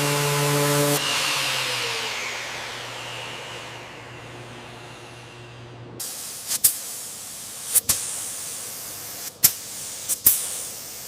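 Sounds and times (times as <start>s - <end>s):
motor hum: 0.0s - 6.0s
spraying hiss: 6.0s - 11.0s.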